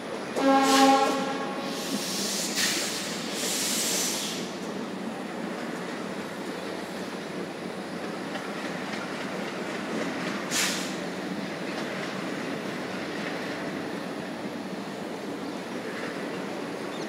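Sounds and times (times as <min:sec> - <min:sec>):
train rolling rumble: 0:00.0 - 0:17.0
short sharp hiss: 0:01.6 - 0:04.6, 0:10.5 - 0:11.0.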